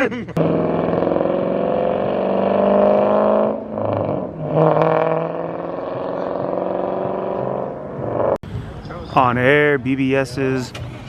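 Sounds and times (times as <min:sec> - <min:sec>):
car engine running: 0:00.4 - 0:08.4.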